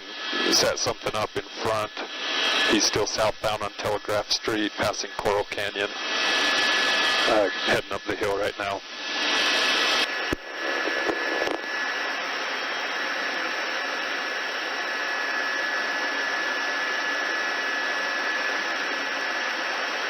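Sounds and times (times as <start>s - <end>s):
helicopter engine and rotors over radio: 0.0s - 12.7s
thin high whine: 0.0s - 13.0s
radio channel keying clicks: 10.3s - 11.6s.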